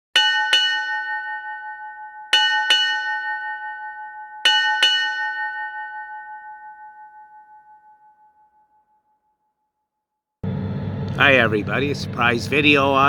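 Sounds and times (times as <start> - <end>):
bell double strikes ringing: 0.2 - 8.8.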